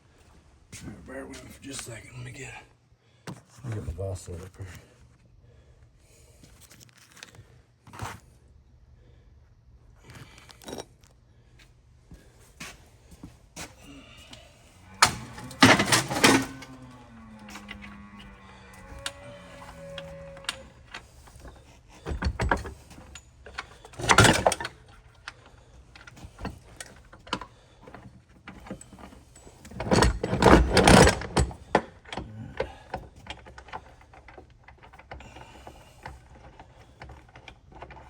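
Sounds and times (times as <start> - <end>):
metal clanking and scraping: 14.8 - 32.3
metal clicks and knocks: 14.9 - 18.0, 18.8 - 35.2.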